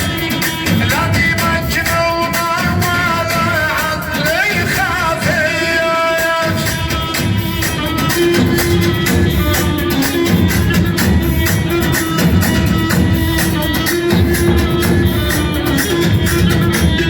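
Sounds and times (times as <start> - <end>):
man singing melismatic melody: 0.0 - 10.6
fast percussion beat: 0.0 - 17.0.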